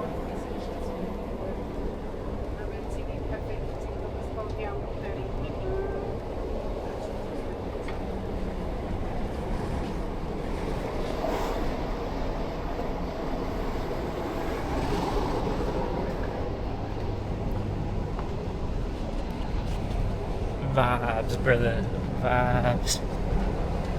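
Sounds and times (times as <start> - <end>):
train running noise inside carriage: 0.0 - 23.9.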